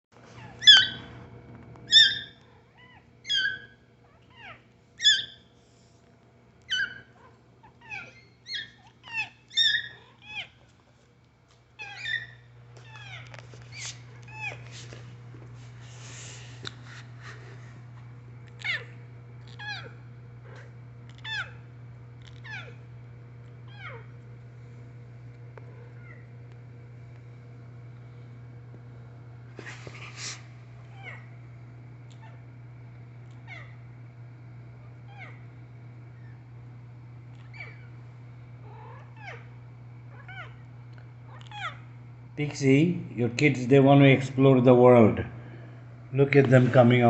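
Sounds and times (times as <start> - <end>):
steady low hum: 0.1 - 47.0
kittens mewing: 0.4 - 1.0, 6.7 - 10.6, 18.5 - 21.6, 23.7 - 24.1, 37.4 - 38.0.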